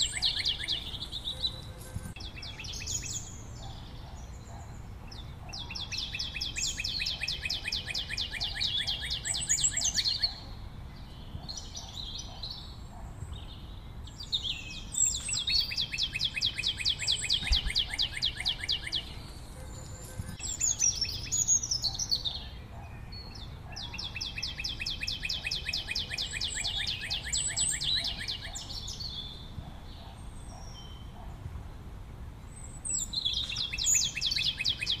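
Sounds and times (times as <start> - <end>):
songbird trilling: 0.0 - 31.4, 32.6 - 35.0
bird chirping: 0.0 - 31.5, 32.4 - 35.0.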